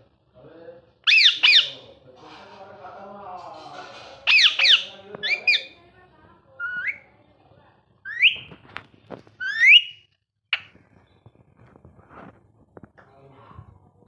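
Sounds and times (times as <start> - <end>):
parrot chirps and whistles: 1.0 - 1.8, 4.3 - 5.8, 6.6 - 7.0, 8.1 - 8.6, 9.4 - 10.7.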